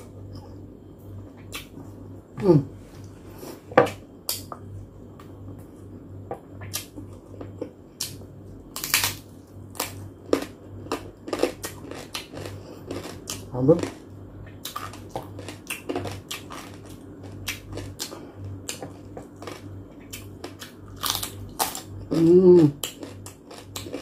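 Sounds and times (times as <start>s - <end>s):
chewing crispy pork skin: 6.7s - 24.0s.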